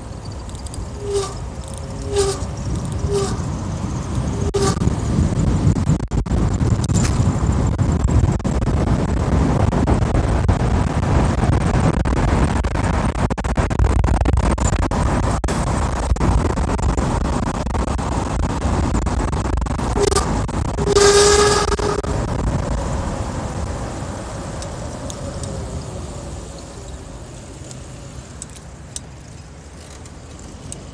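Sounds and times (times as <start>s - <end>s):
road rumble: 0.0s - 30.9s
wind on microphone: 0.0s - 30.9s
horn honk: 0.9s - 3.5s, 4.4s - 4.9s, 19.9s - 22.2s.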